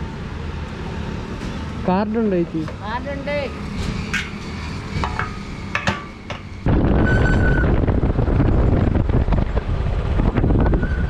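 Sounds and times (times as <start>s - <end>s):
wind buffeting microphone: 3.5s - 11.0s.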